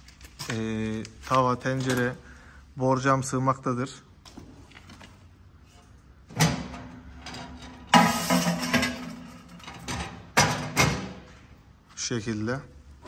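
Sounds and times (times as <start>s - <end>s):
metal clanking and scraping: 5.6s - 11.4s.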